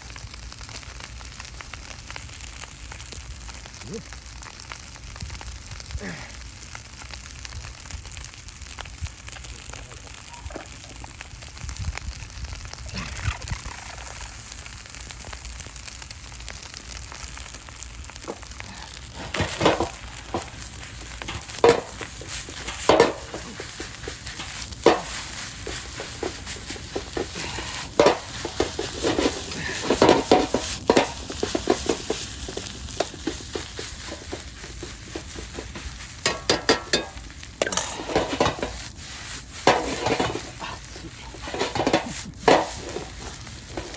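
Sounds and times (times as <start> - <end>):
rice sizzling in frying pan: 0.0 - 43.9
utensil scraping pan: 18.2 - 43.9.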